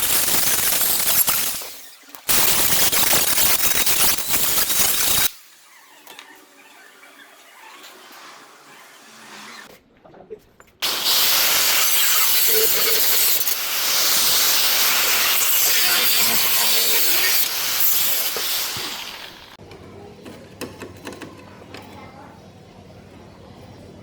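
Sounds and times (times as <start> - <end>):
loud steady hiss: 10.8 - 19.6.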